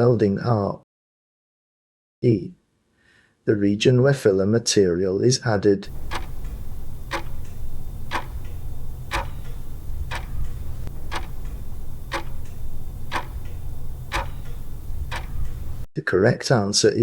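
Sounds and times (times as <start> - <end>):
clock ticking: 5.9 - 15.9
steady low hum: 5.9 - 15.9.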